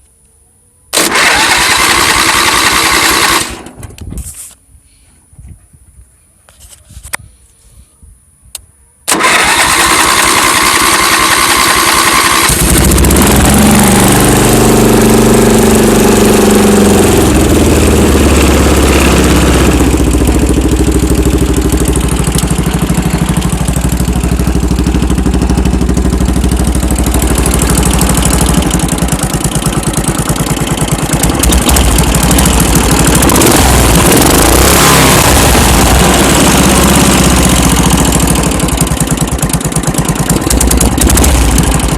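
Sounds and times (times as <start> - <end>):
starter cranking: 1.0 - 3.8, 9.1 - 14.3, 18.6 - 41.9
tractor engine running: 1.0 - 4.1, 9.1 - 41.9.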